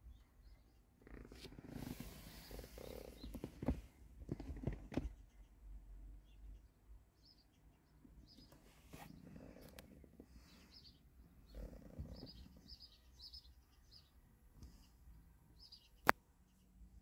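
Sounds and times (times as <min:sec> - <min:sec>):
soft rustles: 0:01.2 - 0:05.2
faint bird chirps: 0:05.1 - 0:17.0.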